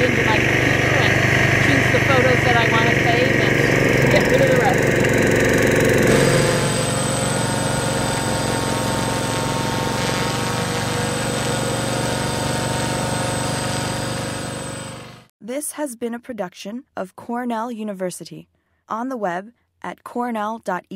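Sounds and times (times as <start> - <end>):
drone propellers buzzing: 0.0 - 15.3.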